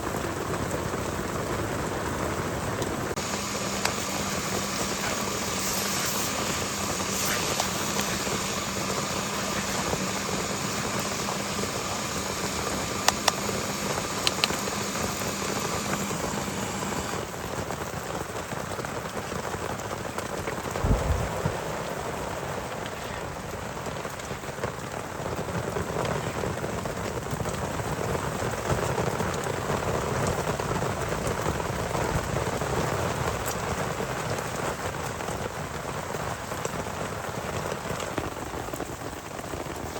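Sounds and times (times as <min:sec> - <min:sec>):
heavy rain falling: 0:00.0 - 0:39.9
steady hum: 0:03.1 - 0:17.4, 0:20.5 - 0:24.9.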